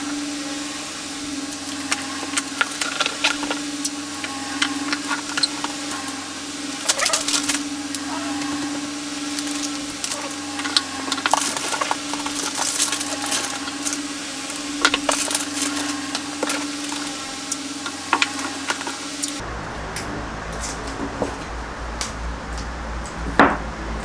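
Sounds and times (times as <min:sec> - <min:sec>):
steady hum: 0:00.0 - 0:24.0
paper crinkling: 0:01.6 - 0:19.4.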